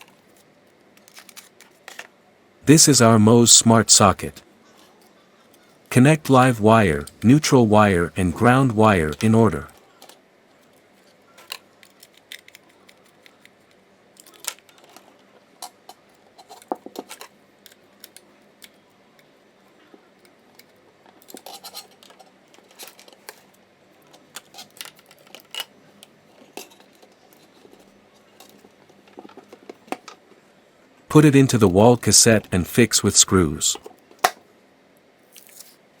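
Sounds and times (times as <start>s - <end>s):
clicks and scrapes of wiring: 20.6s - 23.4s.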